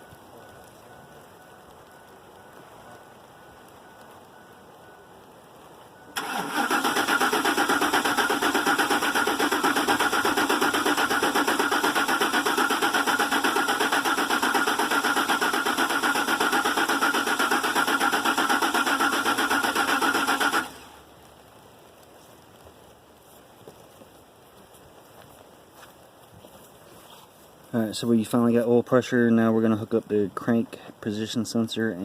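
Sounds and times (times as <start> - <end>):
starter cranking engine: 6.2 - 21.0.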